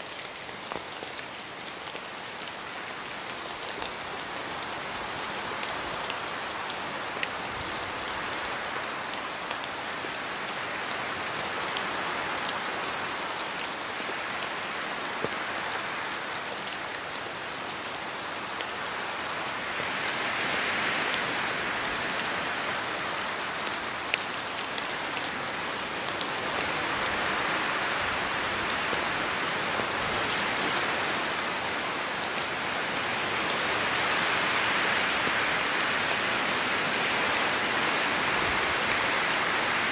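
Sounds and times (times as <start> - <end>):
steady rain in forest: 0.0 - 39.9.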